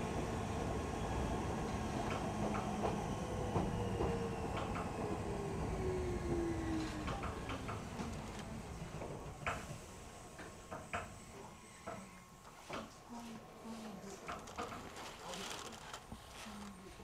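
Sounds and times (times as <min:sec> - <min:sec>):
electric train whine: 0:00.0 - 0:12.6
train car clicks and creaks: 0:14.1 - 0:16.6.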